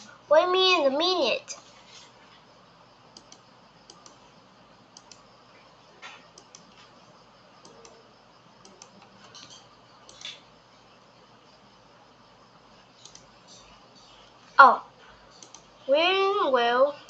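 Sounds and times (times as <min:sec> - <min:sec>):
low room hiss: 0:00.0 - 0:17.0
faint clicks: 0:03.2 - 0:04.2, 0:05.0 - 0:05.3, 0:06.2 - 0:07.0, 0:07.6 - 0:08.0, 0:08.6 - 0:10.4, 0:13.0 - 0:13.3, 0:15.4 - 0:15.7.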